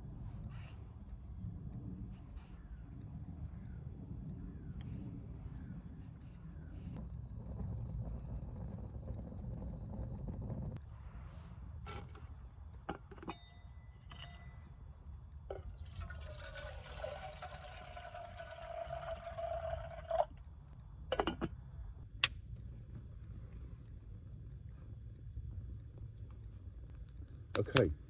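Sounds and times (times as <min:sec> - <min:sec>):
low wind rumble: 0:00.0 - 0:13.0.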